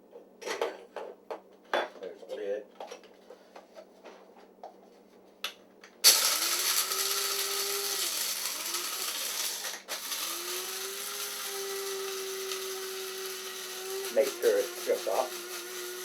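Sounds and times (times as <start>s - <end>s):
electric motor whirring: 6.1s - 16.0s.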